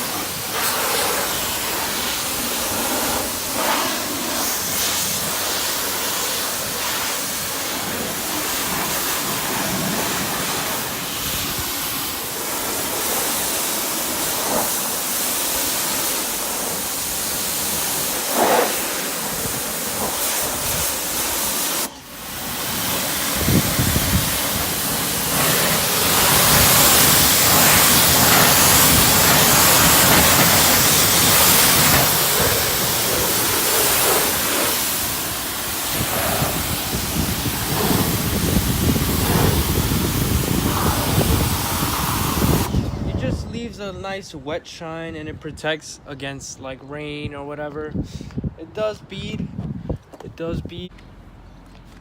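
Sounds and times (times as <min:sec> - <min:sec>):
water spraying hiss: 0:00.0 - 0:43.2.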